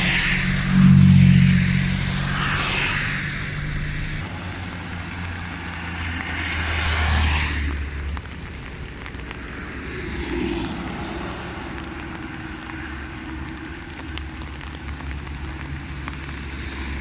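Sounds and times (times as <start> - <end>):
vehicle engine running: 0.0 - 6.3.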